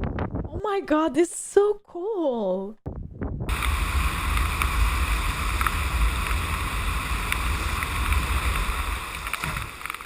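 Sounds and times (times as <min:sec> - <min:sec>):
rain hiss: 0:03.5 - 0:10.0.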